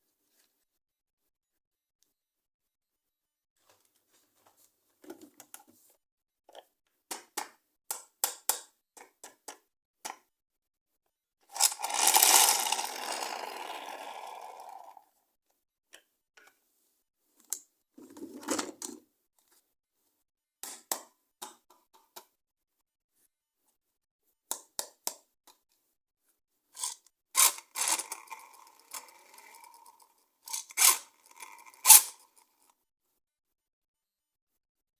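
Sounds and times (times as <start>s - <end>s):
plastic toys clicking and tapping: 6.5s - 10.3s, 11.5s - 14.6s, 26.8s - 32.4s.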